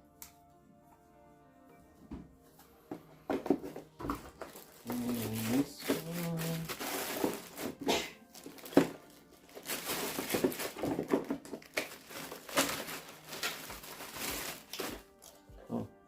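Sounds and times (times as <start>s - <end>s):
plastic packaging crinkling: 3.4s - 15.4s
sharp plastic crackle: 3.5s - 15.4s.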